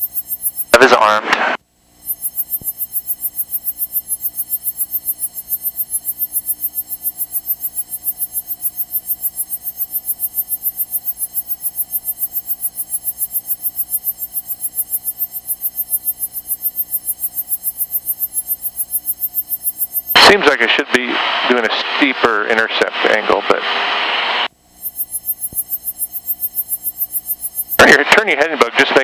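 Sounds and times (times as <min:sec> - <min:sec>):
airplane engine and propeller drone: 0:20.1 - 0:24.5, 0:27.7 - 0:29.0.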